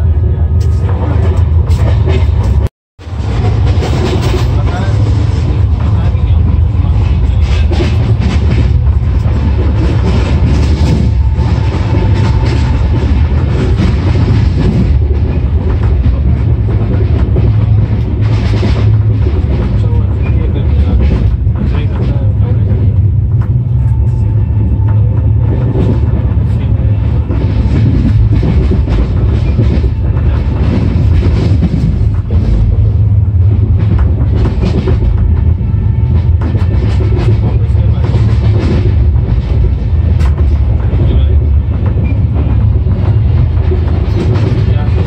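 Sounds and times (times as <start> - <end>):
moving train rumble: 0.0 - 45.0
wheels clacking on rails: 0.0 - 45.0.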